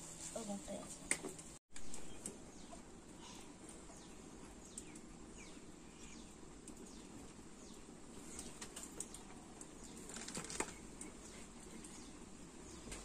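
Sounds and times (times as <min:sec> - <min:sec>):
bird chirping: 0:01.8 - 0:13.0.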